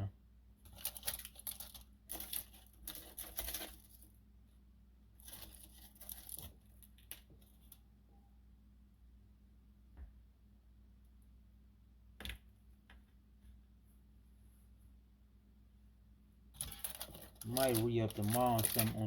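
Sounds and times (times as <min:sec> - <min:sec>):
plastic bag crinkling: 0:00.7 - 0:04.1, 0:05.2 - 0:07.7, 0:16.6 - 0:19.0.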